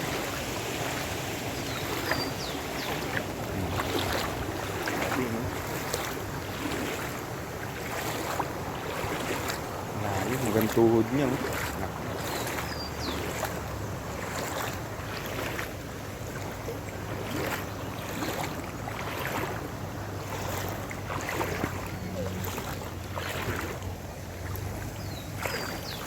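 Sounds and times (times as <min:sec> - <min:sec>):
floodwater sloshing and splashing: 0:00.0 - 0:26.0.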